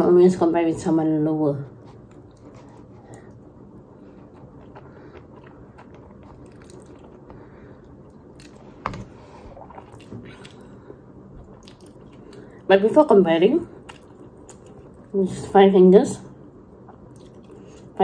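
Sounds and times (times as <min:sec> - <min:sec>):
person chewing: 0:01.9 - 0:12.7, 0:13.8 - 0:15.1, 0:16.8 - 0:18.0.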